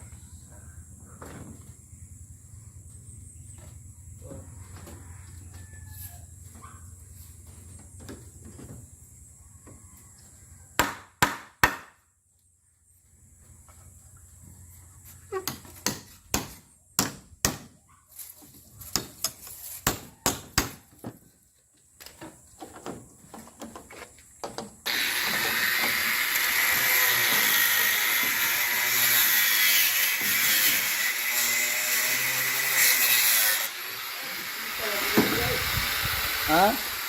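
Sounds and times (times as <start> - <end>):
power tool running: 24.8 - 37.0.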